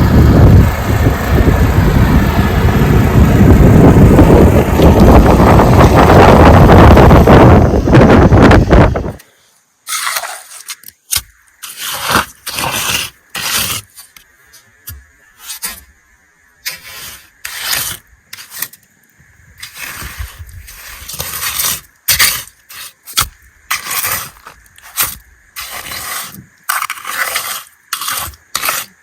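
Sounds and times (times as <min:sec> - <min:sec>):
hand tool scraping: 0:09.9 - 0:15.9, 0:16.6 - 0:18.9, 0:19.6 - 0:29.0.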